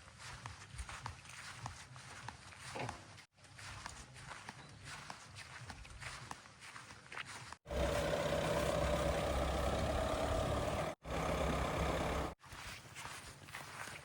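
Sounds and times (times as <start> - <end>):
diesel engine running: 7.7 - 12.4
mid-pitched engine whine: 7.7 - 12.4.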